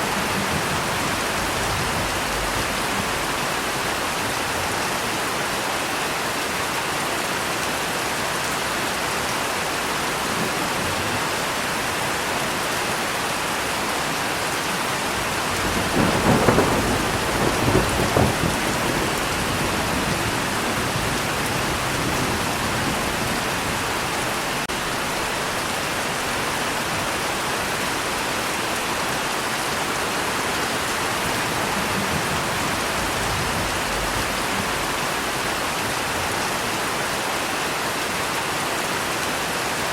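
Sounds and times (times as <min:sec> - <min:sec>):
thunder rumbling: 0:00.0 - 0:04.8, 0:15.1 - 0:24.6, 0:30.6 - 0:36.4
heavy rain falling: 0:00.0 - 0:39.9.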